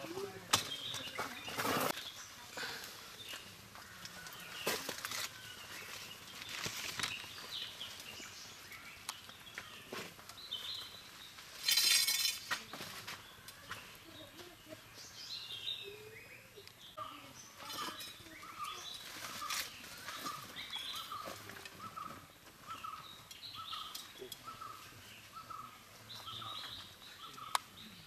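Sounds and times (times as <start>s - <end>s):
small birds chirping: 0.0s - 28.0s
clicks and rustles of handling: 3.3s - 8.1s.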